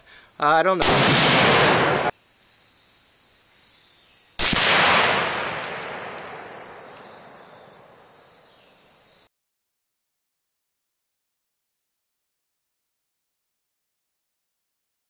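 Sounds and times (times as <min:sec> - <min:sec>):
loud gunshot: 0:00.8 - 0:02.1, 0:04.4 - 0:08.0.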